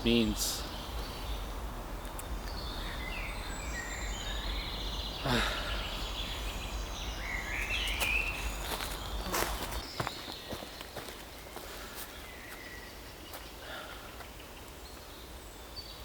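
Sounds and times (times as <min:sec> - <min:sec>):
steady low rumble: 0:00.0 - 0:09.2
birds chirping and trilling: 0:00.0 - 0:16.0.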